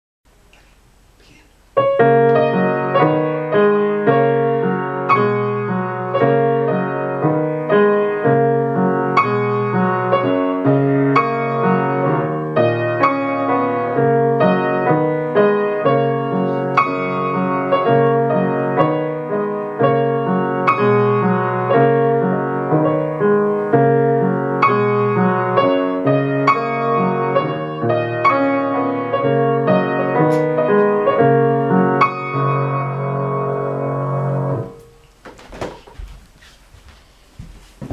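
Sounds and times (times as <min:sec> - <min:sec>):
piano piece: 0:01.7 - 0:35.2.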